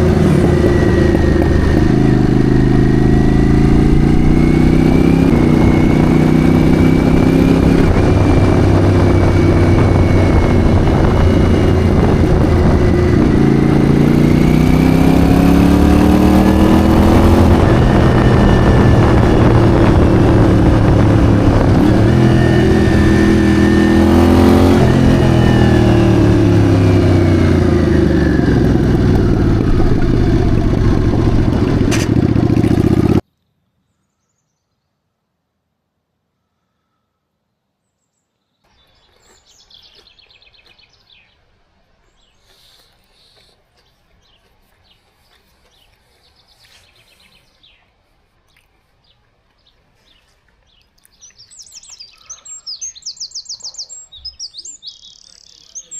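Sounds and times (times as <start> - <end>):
motorcycle engine revving: 0.0 - 33.2.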